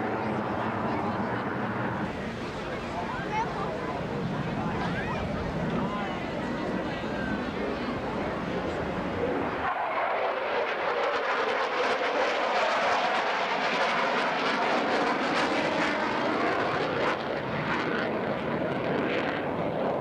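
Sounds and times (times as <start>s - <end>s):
jet aircraft roaring past: 0.0s - 20.0s.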